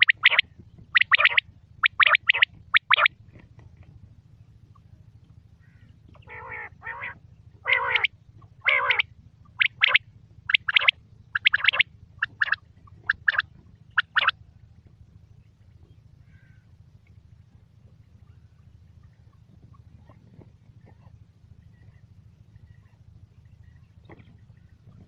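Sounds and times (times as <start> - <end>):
quail calling: 0.0 - 3.1, 5.6 - 14.3
steady low hum: 0.0 - 25.0.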